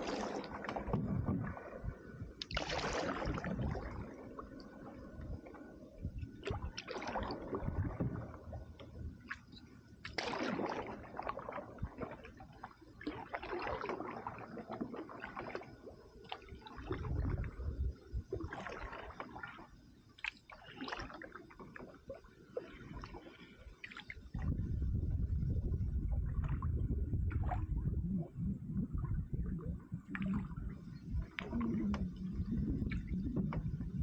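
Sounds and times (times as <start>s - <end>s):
paddle splashing in water: 0.0s - 1.6s, 2.4s - 4.1s, 6.4s - 8.4s, 9.2s - 17.6s, 18.4s - 22.0s, 22.6s - 24.6s.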